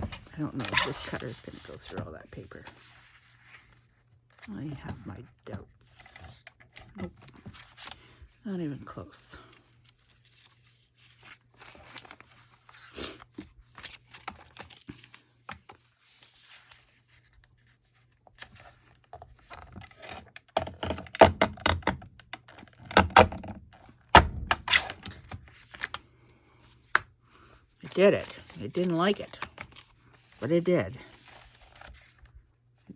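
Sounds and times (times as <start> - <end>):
paper rustling: 0.0 - 4.5, 9.6 - 20.2, 24.6 - 32.4.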